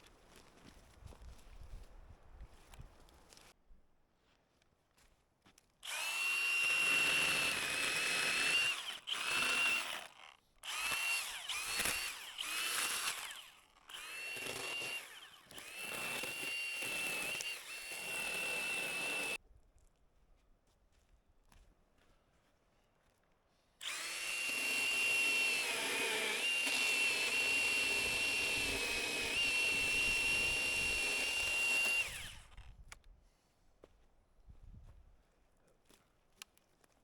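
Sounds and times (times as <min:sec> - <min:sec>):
power tool motor whine: 0:05.8 - 0:19.4, 0:23.8 - 0:32.8.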